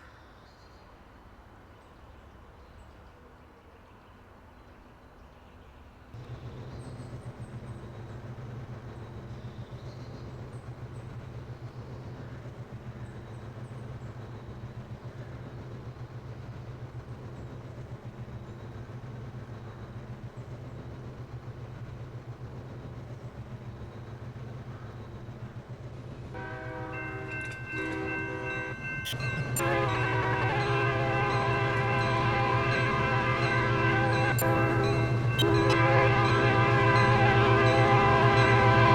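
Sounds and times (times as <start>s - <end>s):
diesel locomotive rumbling: 6.0s - 38.9s
locomotive horn: 26.3s - 38.9s.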